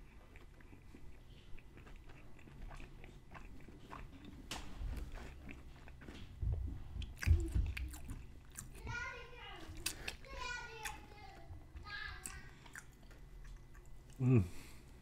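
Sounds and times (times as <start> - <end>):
chewing crispy food: 0.0 - 8.9, 9.6 - 11.5, 12.1 - 14.7.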